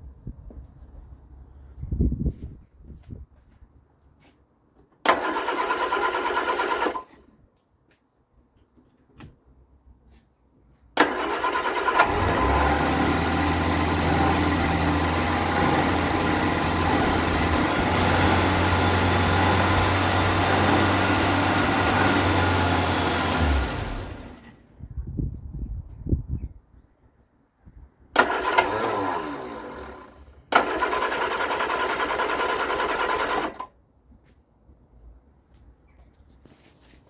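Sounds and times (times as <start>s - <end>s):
engine cranking on starter: 5.0s - 7.2s, 11.0s - 24.6s, 28.1s - 33.8s.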